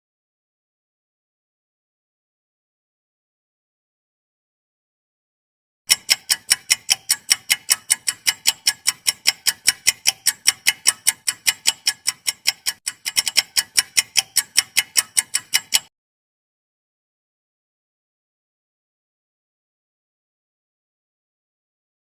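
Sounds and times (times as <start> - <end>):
rapid clock ticking: 5.9 - 15.9.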